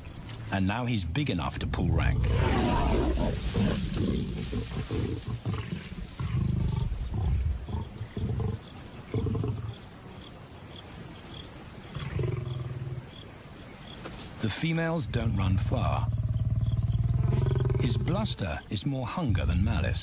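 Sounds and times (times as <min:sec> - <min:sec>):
lions growling and snarling: 0:01.4 - 0:09.9, 0:11.9 - 0:13.2, 0:15.2 - 0:18.4.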